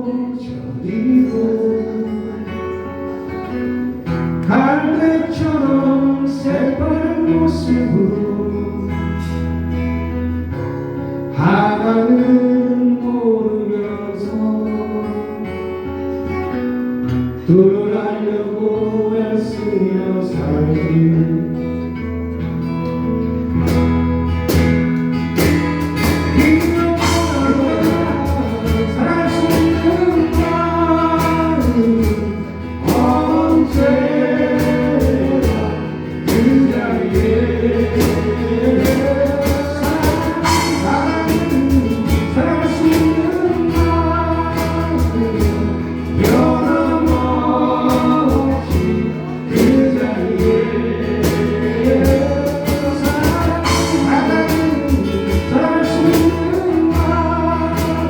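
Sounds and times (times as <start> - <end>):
strummed acoustic guitar: 0.0 - 58.0
people singing together: 4.4 - 9.4, 25.4 - 58.0.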